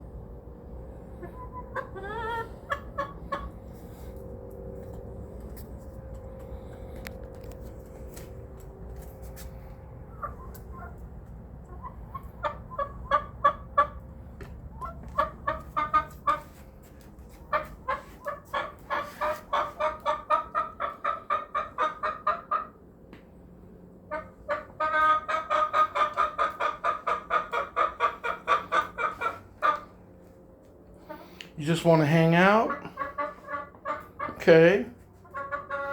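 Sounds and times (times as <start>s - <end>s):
hen clucking: 0.9s - 4.2s, 10.1s - 22.9s, 24.0s - 30.3s, 30.9s - 35.9s.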